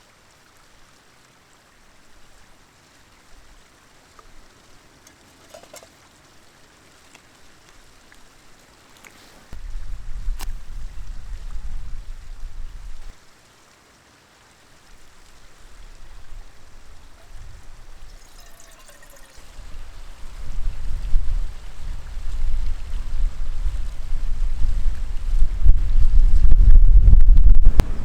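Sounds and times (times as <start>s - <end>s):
wind buffeting microphone: 9.5s - 13.2s, 15.3s - 18.3s, 19.4s - 28.0s.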